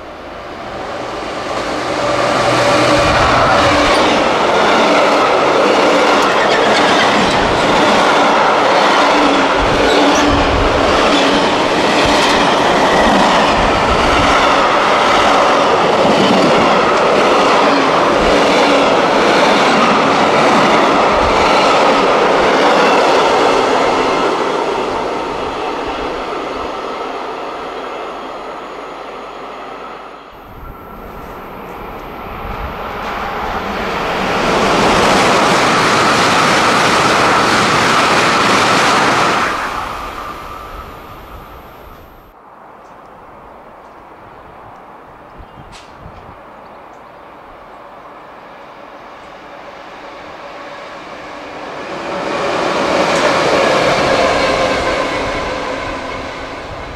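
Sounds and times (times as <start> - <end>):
rushing sound: 0.0 - 15.3, 30.4 - 42.3.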